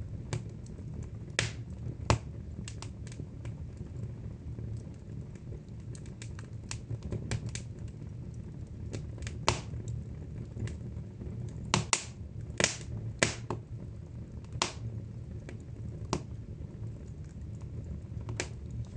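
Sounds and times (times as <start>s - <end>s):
low steady rumble: 0.0s - 18.9s
wood fire crackling: 0.0s - 18.9s.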